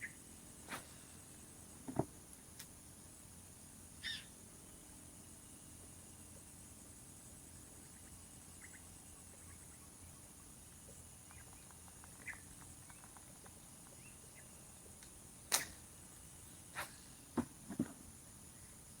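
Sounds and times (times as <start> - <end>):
insect drone: 0.0 - 19.0
faint chirps and ticks: 3.6 - 15.3.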